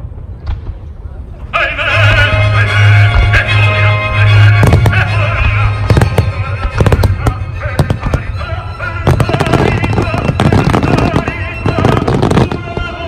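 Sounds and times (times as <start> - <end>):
music playing: 1.5 - 13.0
fireworks bursting and crackling: 4.6 - 13.0.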